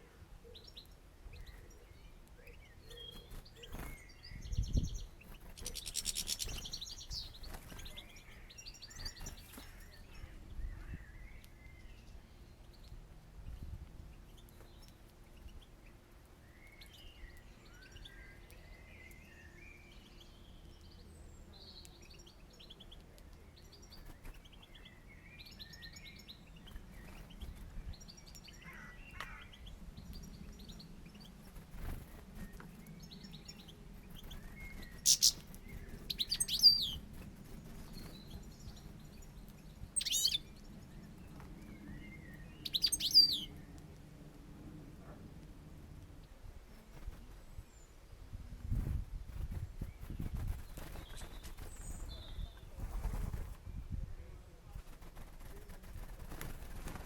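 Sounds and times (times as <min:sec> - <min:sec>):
small birds twittering: 0:00.0 - 0:57.0
loud sharp bird calls: 0:02.9 - 0:11.4, 0:34.2 - 0:37.0, 0:40.0 - 0:40.5, 0:42.0 - 0:43.5.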